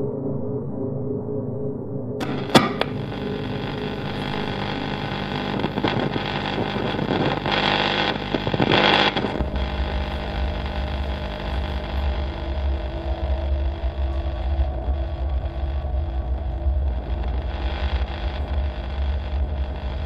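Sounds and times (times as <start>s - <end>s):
sharp click: 2.2s - 3.0s
deep throbbing low hum: 2.2s - 20.0s
machine hum: 2.2s - 20.0s.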